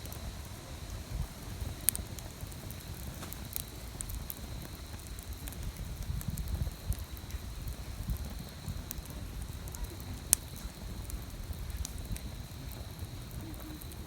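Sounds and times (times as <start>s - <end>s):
loud pop from fire: 0.0s - 14.0s
wood fire crackling: 0.0s - 14.0s.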